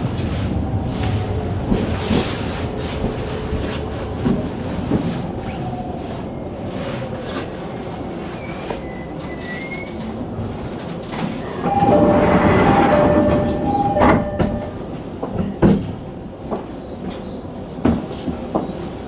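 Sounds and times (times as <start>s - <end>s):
rail clicks: 10.6s - 17.2s
electric train running: 11.6s - 14.8s
level crossing bell: 11.7s - 14.9s.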